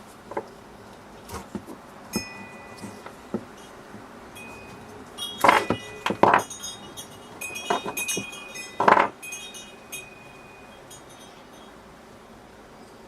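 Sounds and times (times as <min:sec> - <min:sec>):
metal parts and tools clinking: 0:04.4 - 0:11.8.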